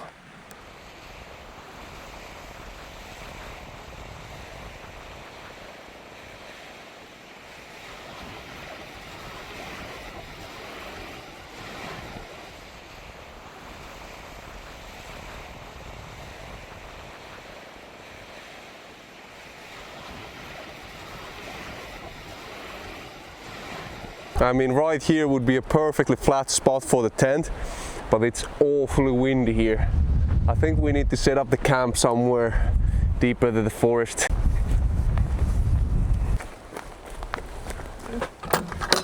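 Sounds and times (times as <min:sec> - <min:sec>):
strong wind blowing: 0:00.0 - 0:06.8, 0:07.5 - 0:18.6, 0:27.5 - 0:39.0
wind buffeting microphone: 0:00.0 - 0:06.8, 0:07.5 - 0:18.6, 0:19.4 - 0:25.3, 0:27.4 - 0:39.0
small waves washing on shore: 0:00.0 - 0:29.7, 0:33.6 - 0:39.0.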